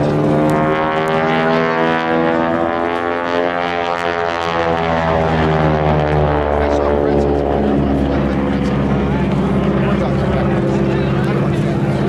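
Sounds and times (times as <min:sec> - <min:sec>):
aircraft engines droning: 0:00.0 - 0:12.0.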